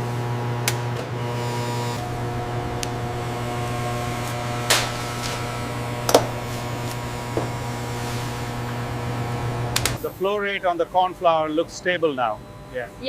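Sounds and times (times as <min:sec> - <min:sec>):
factory machinery hum: 0:01.3 - 0:11.1.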